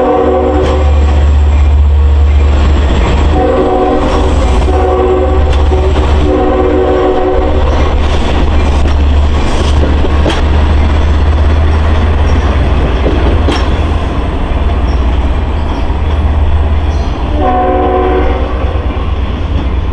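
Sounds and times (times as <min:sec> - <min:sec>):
train chord horn blast: 0:00.0 - 0:01.1, 0:03.3 - 0:07.8, 0:17.3 - 0:19.2
diesel locomotive engine drone: 0:00.0 - 0:19.9
rail noise: 0:00.0 - 0:19.9.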